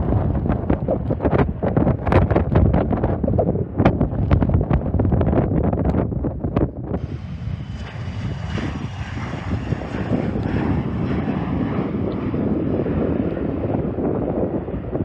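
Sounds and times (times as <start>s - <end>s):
jet engines rushing with whine: 7.0s - 15.0s.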